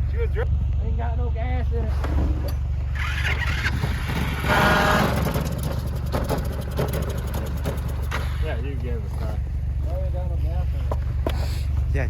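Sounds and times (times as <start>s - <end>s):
engine popping: 2.6s - 11.9s
small gasoline engine running: 2.8s - 9.2s.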